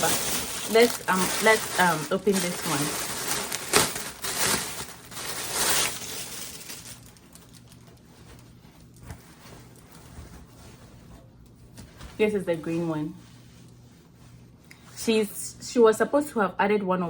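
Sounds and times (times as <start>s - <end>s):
packaging crinkling and tearing: 0.0s - 10.0s.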